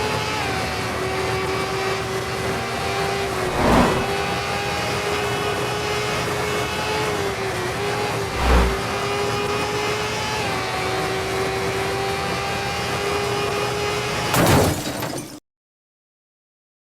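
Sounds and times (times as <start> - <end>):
wind and road noise: 2.5 - 4.7, 7.2 - 9.5
loud rush of wind: 3.3 - 4.2.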